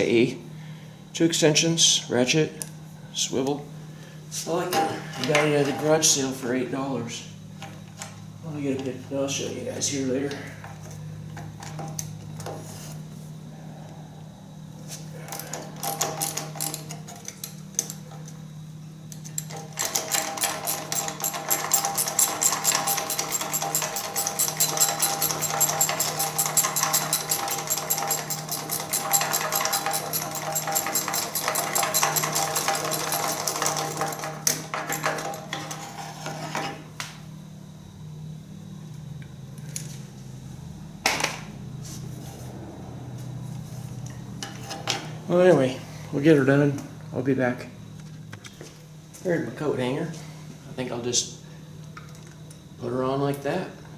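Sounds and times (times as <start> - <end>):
steady low hum: 0.0 - 51.9
socket ratchet clicking: 20.1 - 33.8.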